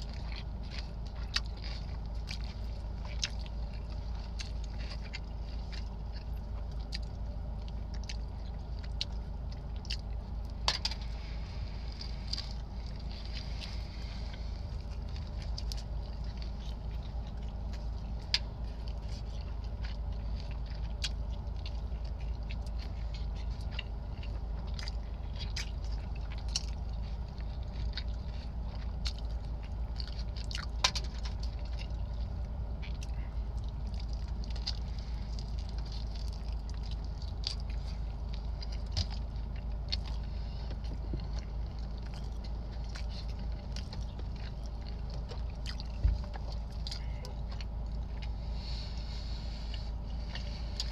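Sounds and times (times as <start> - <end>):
chewing and biting food: 0.0 - 50.9
steady low hum: 0.0 - 50.9.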